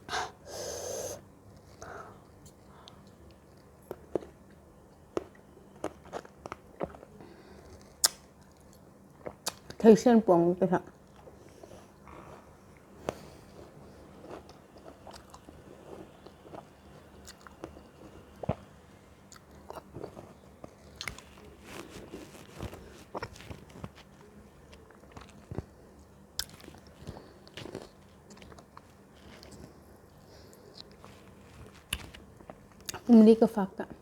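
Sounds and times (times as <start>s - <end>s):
chewing crunchy fruit: 1.5s - 9.8s, 10.9s - 33.1s
wet mouth clicks: 8.0s - 8.2s.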